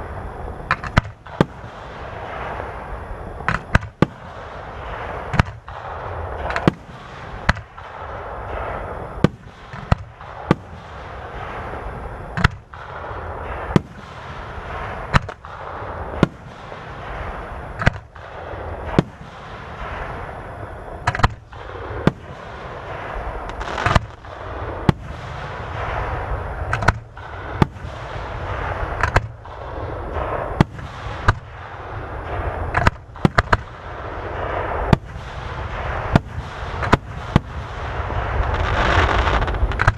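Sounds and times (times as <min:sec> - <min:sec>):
fireworks bursting with bangs: 0:00.0 - 0:39.9
fireworks crackling: 0:00.0 - 0:39.9.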